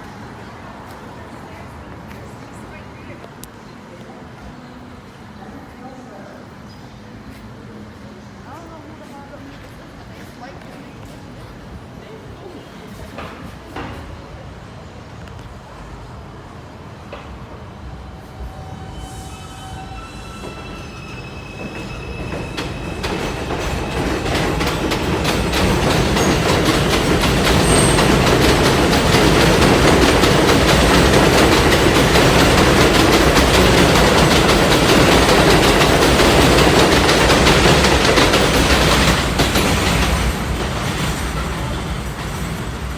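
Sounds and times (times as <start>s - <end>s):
subway train wheels rumbling on rails: 0.0s - 42.9s.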